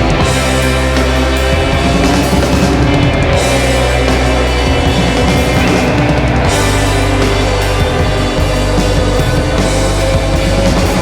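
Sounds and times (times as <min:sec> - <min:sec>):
loud rock band playing: 0:00.0 - 0:11.0.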